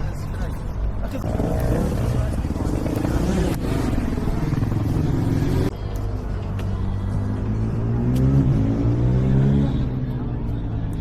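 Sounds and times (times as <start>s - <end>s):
motorcycle engines running: 1.1s - 10.9s
engine revving: 7.2s - 10.0s.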